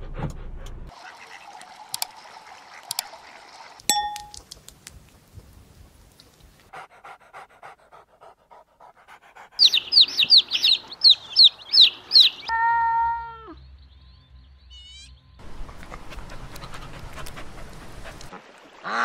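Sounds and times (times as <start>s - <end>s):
baby chicks peeping: 9.6s - 12.5s.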